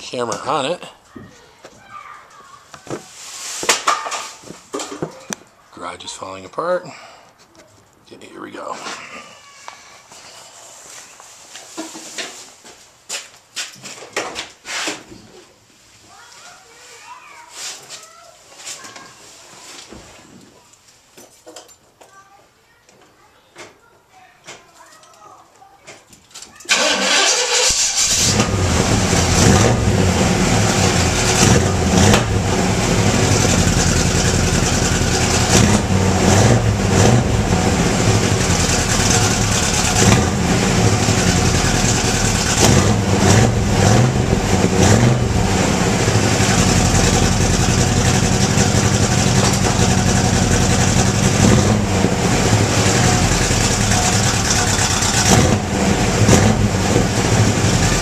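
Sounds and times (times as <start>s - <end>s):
car engine exhaust with throttle blips: 28.2s - 58.0s.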